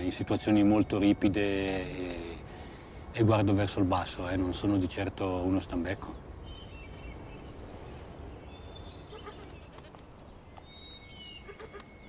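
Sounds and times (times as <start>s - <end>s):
faint outdoor ambience: 0.0s - 12.0s
high bird chirps: 6.2s - 12.0s.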